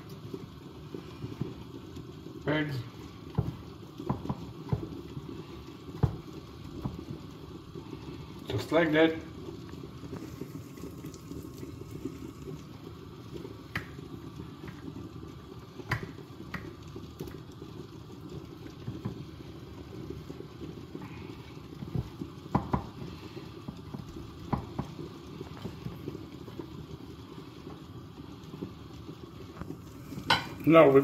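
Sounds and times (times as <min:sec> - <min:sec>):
low kitchen hiss: 0:00.0 - 0:31.0.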